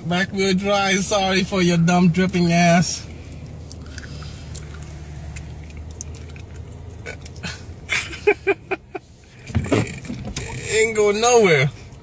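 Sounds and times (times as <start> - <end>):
car engine idling: 0.0 - 12.0
person chuckling: 7.0 - 9.0.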